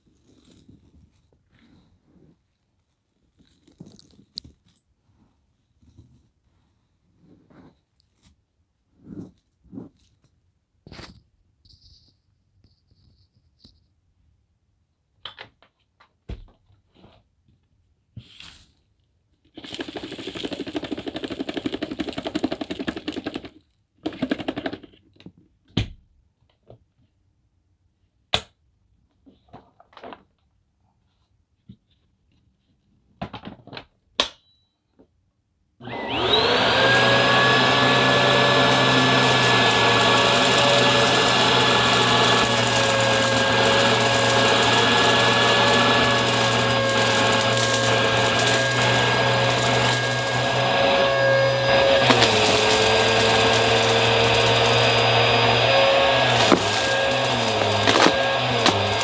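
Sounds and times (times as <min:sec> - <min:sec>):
clicks and handling noises: 0:02.9 - 0:05.0, 0:51.6 - 0:59.0
vacuum cleaner motor whine: 0:35.8 - 0:59.0.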